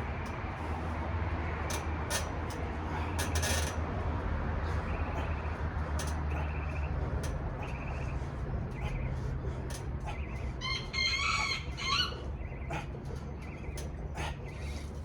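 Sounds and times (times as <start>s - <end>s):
rooster crowing: 10.6s - 12.3s.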